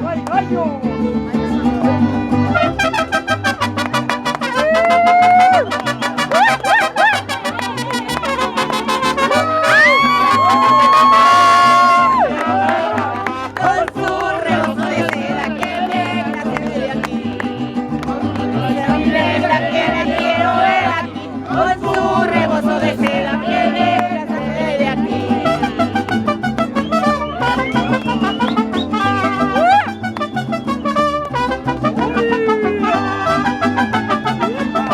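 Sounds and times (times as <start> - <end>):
bass line: 0.0 - 34.9
guitars plucked and strummed: 0.0 - 34.9
person singing: 4.3 - 26.6, 32.0 - 34.9.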